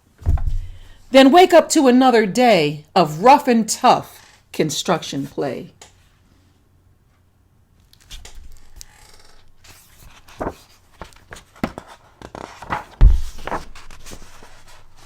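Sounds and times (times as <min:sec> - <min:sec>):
low thump of book: 0:00.2 - 0:00.9, 0:12.9 - 0:14.3
paper rustling: 0:07.8 - 0:15.0.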